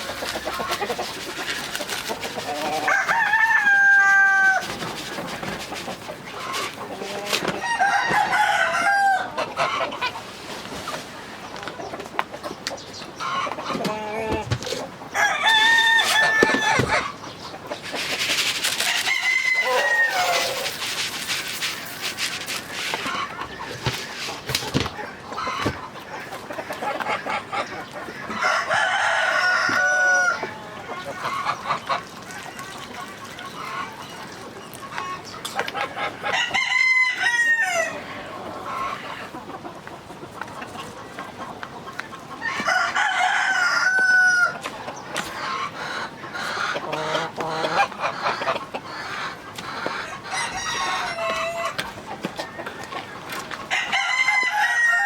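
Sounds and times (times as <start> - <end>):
hens clucking: 0.0 - 55.0
rooster crowing: 2.7 - 4.7, 7.6 - 9.4, 15.2 - 16.9, 18.9 - 20.7, 28.4 - 30.5, 36.3 - 38.0, 42.5 - 44.6, 50.3 - 51.8, 53.7 - 55.0.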